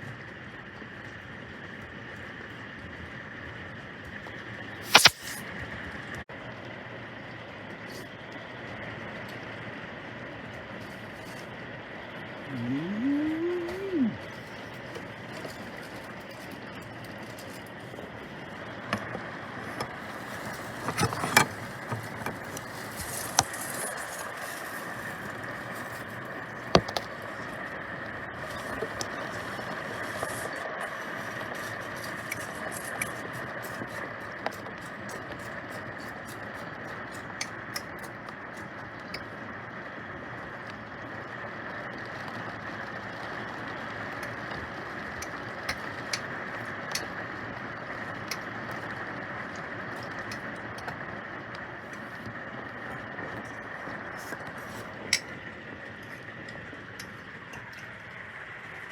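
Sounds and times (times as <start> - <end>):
steady rain hiss: 13.3 - 37.8, 38.4 - 58.9.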